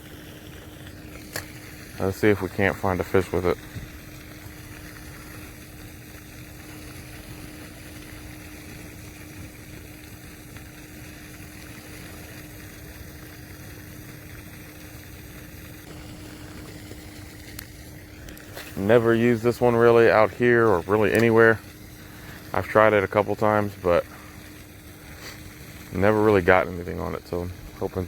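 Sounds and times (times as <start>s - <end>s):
faint steady hum: 0.0s - 28.0s
even hiss: 1.1s - 9.5s, 15.8s - 28.0s.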